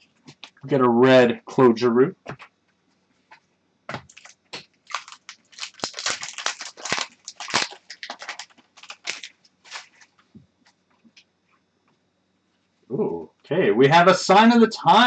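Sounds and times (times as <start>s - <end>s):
foil wrapper crinkling and tearing: 4.1s - 10.2s.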